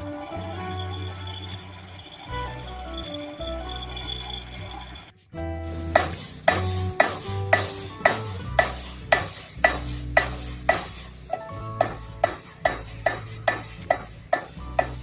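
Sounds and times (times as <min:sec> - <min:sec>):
hammer striking iron on anvil: 0:05.9 - 0:15.0.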